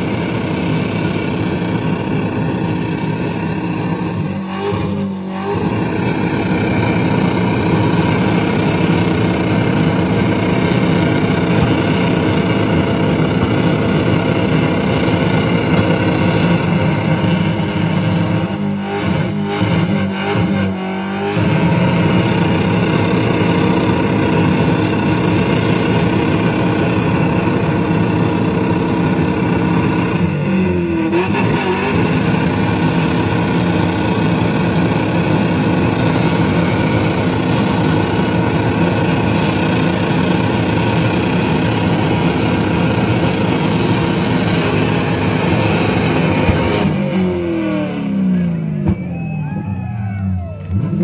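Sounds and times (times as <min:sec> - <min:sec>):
car engine revving high: 0:00.0 - 0:49.6, 0:50.6 - 0:51.0.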